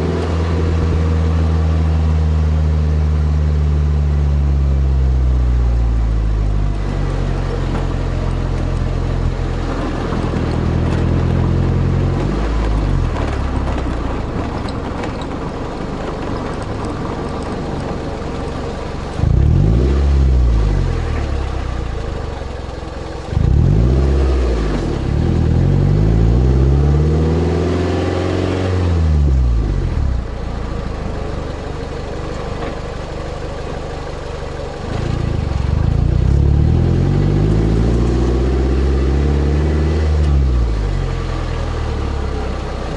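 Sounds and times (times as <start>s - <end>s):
car engine exhaust revving: 15.7s - 42.9s.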